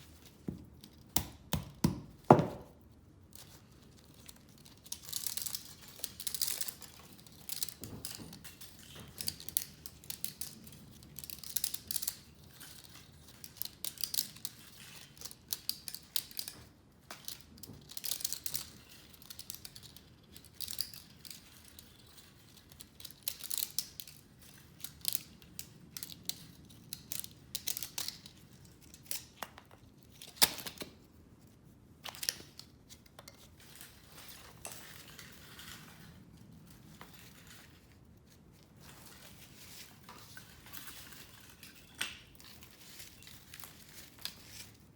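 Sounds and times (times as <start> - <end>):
snipping and crinkling of scrap: 3.4 - 31.2, 32.0 - 44.9.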